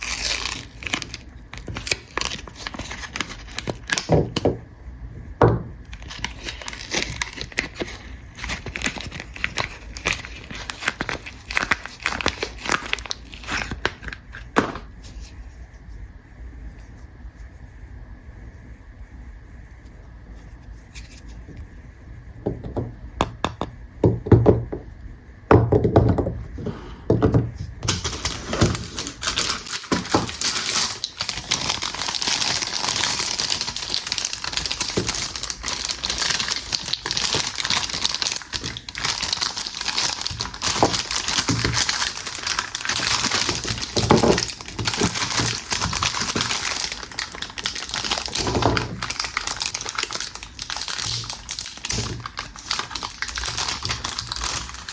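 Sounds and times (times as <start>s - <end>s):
wrapper crinkling: 0.0s - 4.5s, 5.9s - 14.8s, 27.8s - 54.9s.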